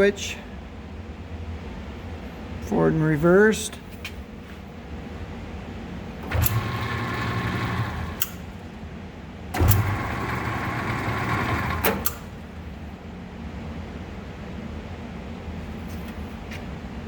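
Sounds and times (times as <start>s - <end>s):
metal lathe humming: 6.2s - 8.6s, 9.6s - 12.6s.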